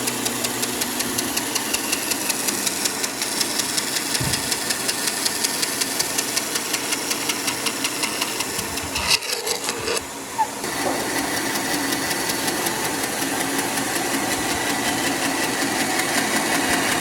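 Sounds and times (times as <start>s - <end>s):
rapid even ticking: 0.0s - 10.0s
woodworking machine running: 0.0s - 17.0s.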